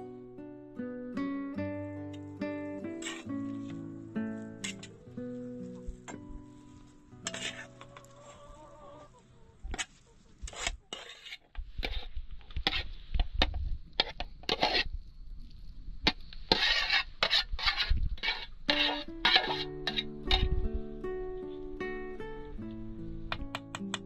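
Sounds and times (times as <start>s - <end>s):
rustling and scraping: 2.9s - 15.0s, 16.0s - 20.6s.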